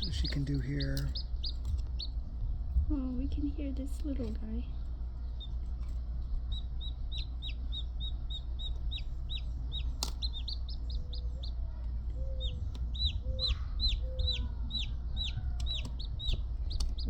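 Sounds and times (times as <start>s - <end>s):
chick peeping: 0.0s - 2.2s, 5.2s - 17.0s
sharp click: 10.0s - 10.3s.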